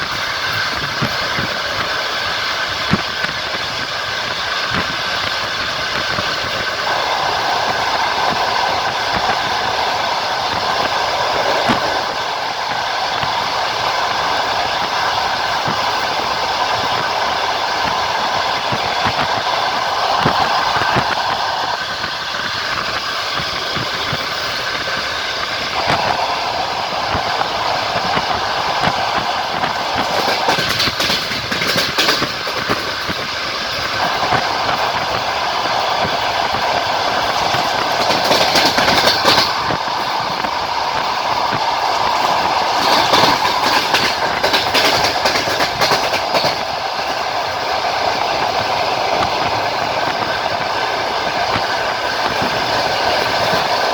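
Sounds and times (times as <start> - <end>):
train wheels rolling on rails: 0.0 - 53.9
rail joints clattering: 28.8 - 47.8.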